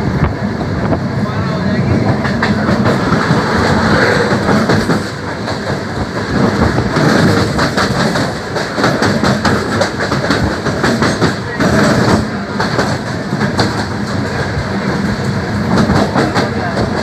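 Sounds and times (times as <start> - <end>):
train rumbling on track: 0.0 - 17.0
wheels clattering over rail joints: 2.0 - 14.6.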